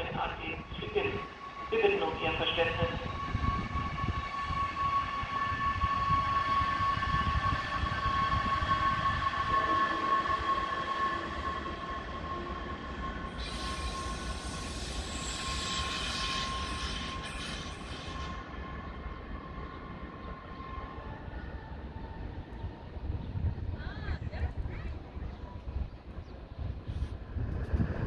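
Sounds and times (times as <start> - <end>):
high train whine: 0.0 - 28.0
train rumble: 0.0 - 28.0
hiss: 13.3 - 18.3.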